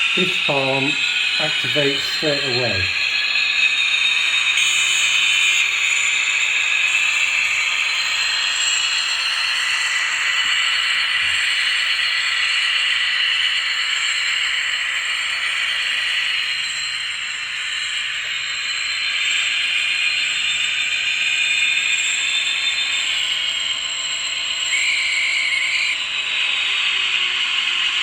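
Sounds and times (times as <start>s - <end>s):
model train engine sound from speaker: 0.0s - 28.0s.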